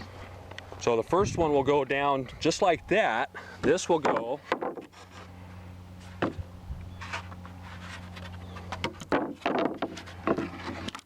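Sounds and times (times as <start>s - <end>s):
steady low hum: 0.0s - 11.0s
wooden boards knocking: 4.0s - 4.9s, 8.8s - 10.9s.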